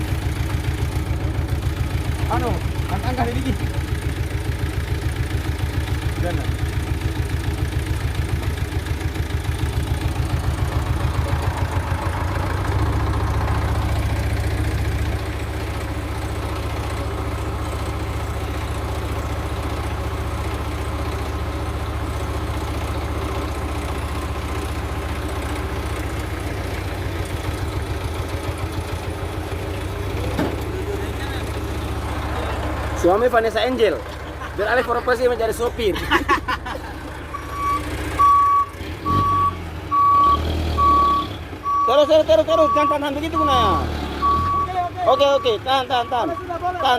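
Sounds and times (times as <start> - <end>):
diesel truck engine idling: 0.0 - 46.9.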